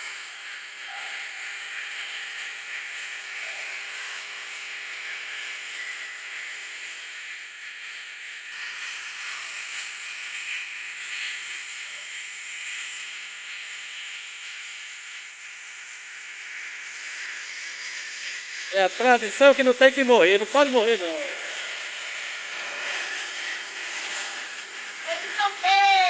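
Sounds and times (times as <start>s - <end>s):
bonfire burning with hiss: 13.1s - 26.0s.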